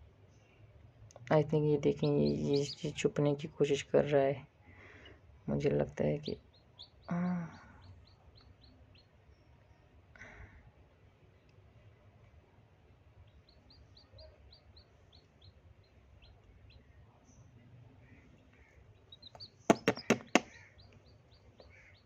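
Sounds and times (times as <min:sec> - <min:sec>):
chicks peeping: 0:01.6 - 0:03.9, 0:06.1 - 0:09.1, 0:13.2 - 0:16.8, 0:18.1 - 0:22.0
sharp knocks: 0:19.7 - 0:20.6.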